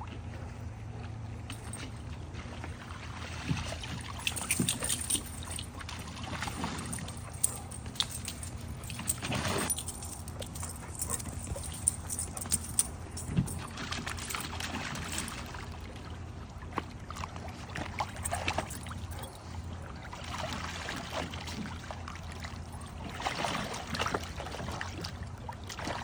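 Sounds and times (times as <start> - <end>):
low hum: 0.0 - 23.2
metallic jingles: 4.2 - 15.5.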